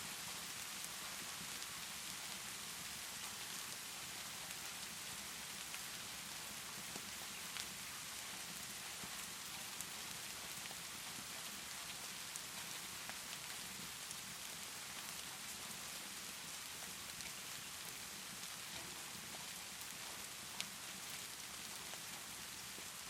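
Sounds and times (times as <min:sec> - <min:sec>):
steady rainfall: 0:00.0 - 0:23.0.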